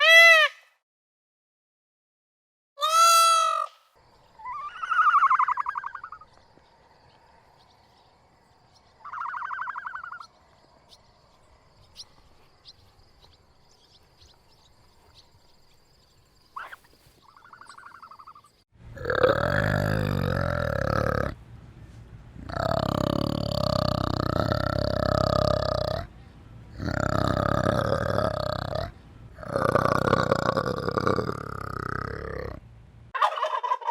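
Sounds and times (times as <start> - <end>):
loud harsh animal calls: 2.8 - 6.3, 9.0 - 10.3, 19.0 - 21.4, 22.4 - 26.1, 26.7 - 32.6
high trembling animal calls: 2.8 - 8.0, 8.8 - 15.3, 16.5 - 21.4, 22.4 - 32.6
faint chirping: 4.0 - 18.7, 22.2 - 32.6.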